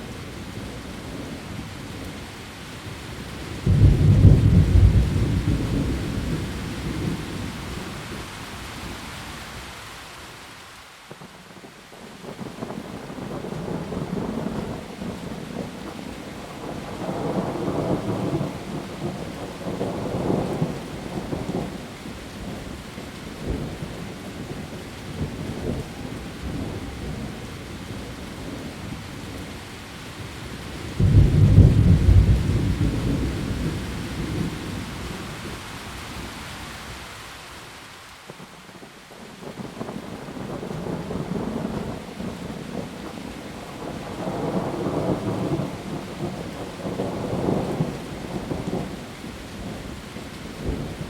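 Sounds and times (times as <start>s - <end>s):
heavy rain on leaves: 0.0s - 51.0s
thunder rumbling: 3.6s - 7.9s, 31.0s - 35.6s, 43.7s - 49.0s
loud thunderclap: 31.0s - 34.8s.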